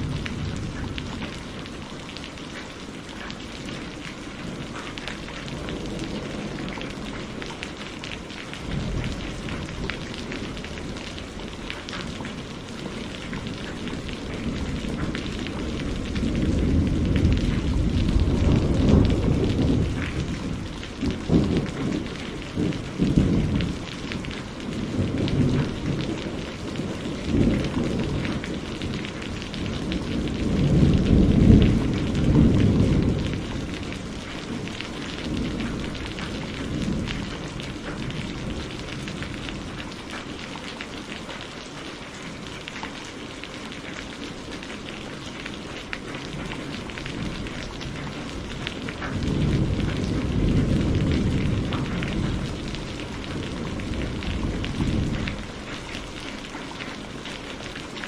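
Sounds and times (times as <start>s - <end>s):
steady rain: 0.0s - 58.0s
rolling thunder: 3.7s - 39.9s, 46.1s - 55.9s.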